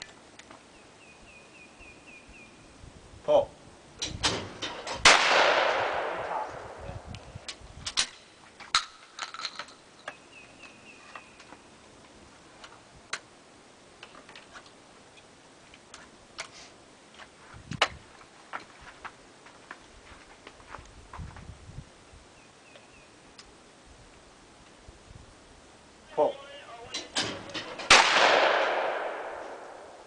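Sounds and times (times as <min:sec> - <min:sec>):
shotgun shot echoing: 0:04.4 - 0:06.8, 0:27.2 - 0:30.0
sharp clicks and knocks: 0:26.9 - 0:28.1.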